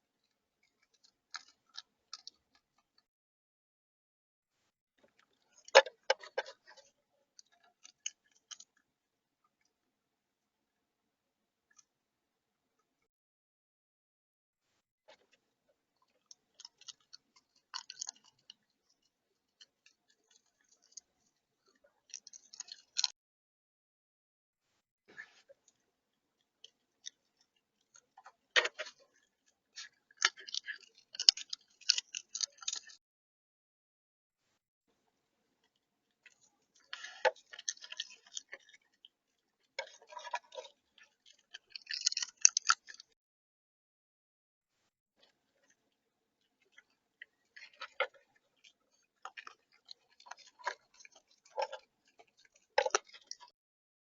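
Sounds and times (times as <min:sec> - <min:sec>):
animal crunching seed: 0:00.2 - 0:03.0, 0:05.1 - 0:08.9, 0:16.0 - 0:23.1, 0:26.6 - 0:33.0, 0:35.6 - 0:43.2, 0:45.2 - 0:53.5
bird cracking seeds: 0:29.8 - 0:33.0, 0:39.8 - 0:43.1.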